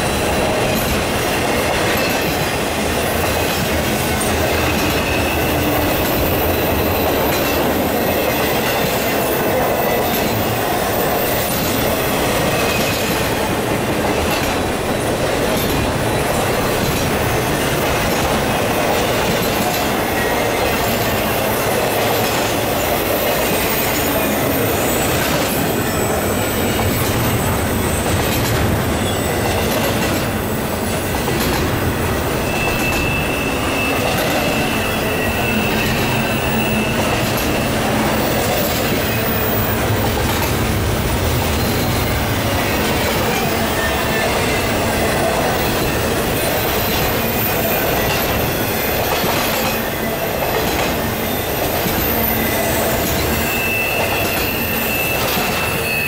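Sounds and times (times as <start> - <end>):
train wheels on rails: 0.0 - 56.0.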